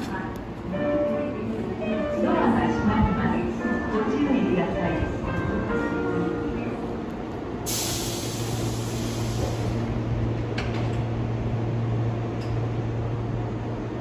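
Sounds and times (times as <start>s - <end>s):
electric train humming: 0.0s - 14.0s
compressed air hiss: 7.7s - 9.8s.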